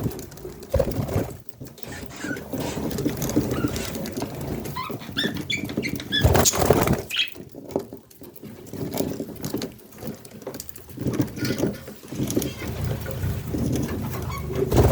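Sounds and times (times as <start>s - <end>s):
budgie chicks chirping: 4.7s - 7.4s.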